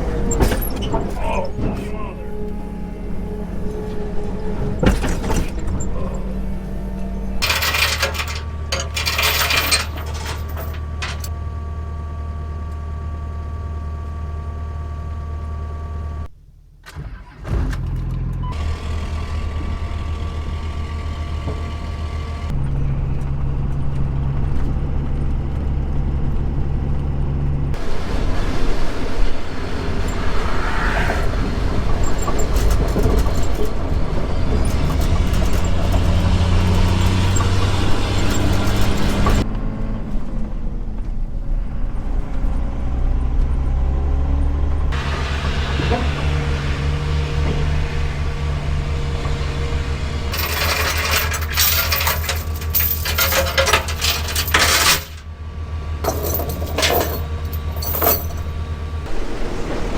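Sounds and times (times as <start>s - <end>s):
vehicle engine running: 17.6s - 59.9s
rush of travel and wind noise: 22.5s - 55.0s, 56.0s - 59.9s.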